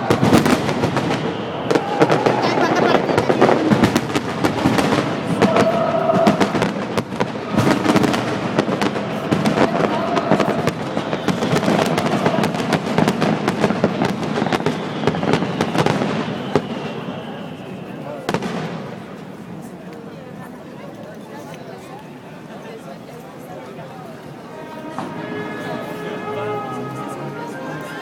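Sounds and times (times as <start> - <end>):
fireworks bangs and crackling: 0.0 - 20.1.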